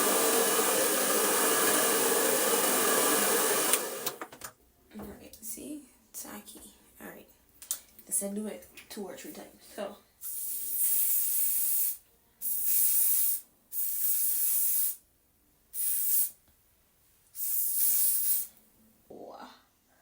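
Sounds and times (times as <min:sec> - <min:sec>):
aerosol spray hissing: 0:00.0 - 0:04.1, 0:10.3 - 0:15.0, 0:15.8 - 0:16.4, 0:17.4 - 0:18.5.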